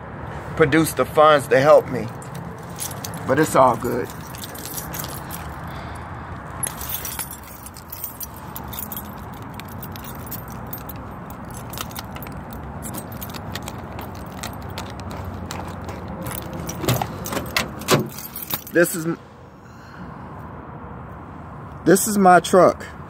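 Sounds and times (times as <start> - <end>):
keys jangling: 2.0 - 19.0.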